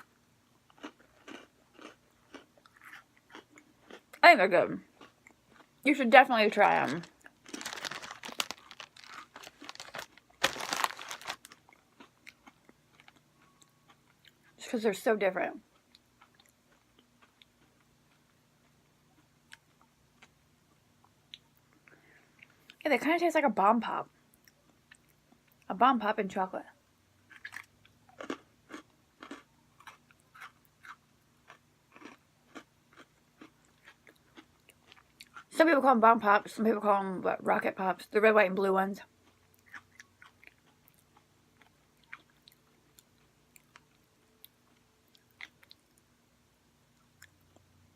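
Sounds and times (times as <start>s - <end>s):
person chewing crunchy cookie: 0.0s - 4.2s, 4.8s - 14.6s, 15.6s - 22.8s, 27.2s - 35.5s, 39.1s - 46.1s
plastic packaging crinkling: 6.4s - 11.7s.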